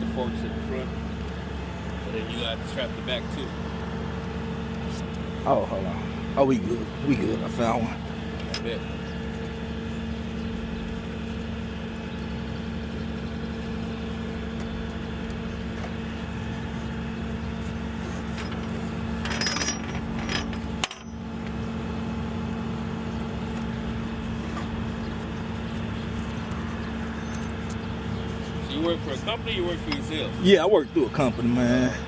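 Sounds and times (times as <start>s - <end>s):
truck engine idling: 0.0s - 32.0s
metallic clatter: 18.0s - 21.6s.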